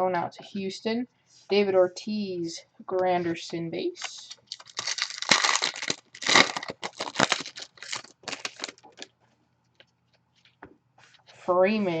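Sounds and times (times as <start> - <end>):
card pack wrapper crinkling and tearing: 4.0 - 9.1.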